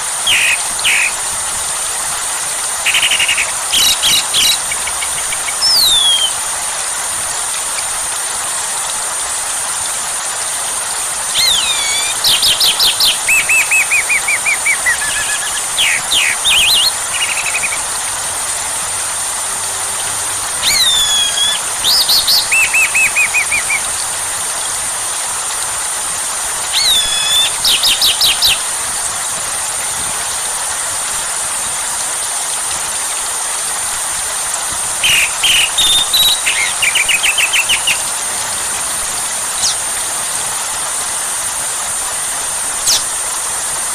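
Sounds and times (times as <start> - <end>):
songbird singing: 0.0 - 1.3, 2.8 - 6.5, 11.3 - 18.0, 20.6 - 24.0, 26.7 - 28.7, 35.0 - 38.2, 39.6 - 40.0, 42.8 - 43.1
rain hiss: 0.0 - 43.9.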